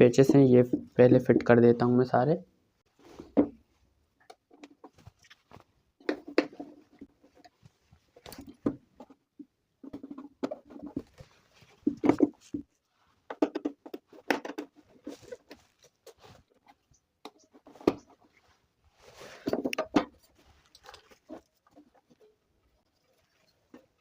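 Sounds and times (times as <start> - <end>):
plastic casing being handled: 19.2 - 24.0.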